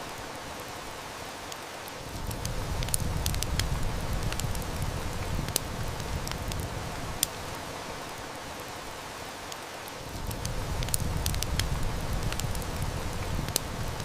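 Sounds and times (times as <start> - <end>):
heavy rain falling: 0.0 - 14.0
wood fire crackling: 0.0 - 14.0
distant thunder rumble: 2.1 - 7.6, 10.1 - 14.0.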